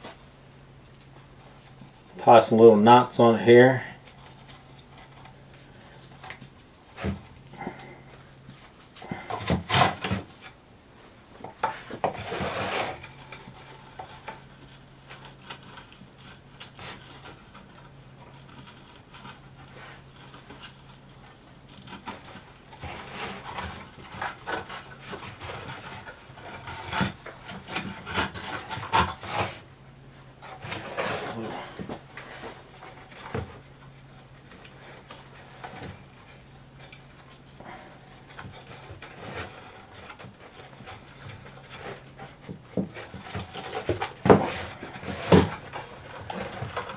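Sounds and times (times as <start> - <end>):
rope rubbing against wood: 11.6 - 29.7
knocks and scrapes from handling: 34.5 - 46.9.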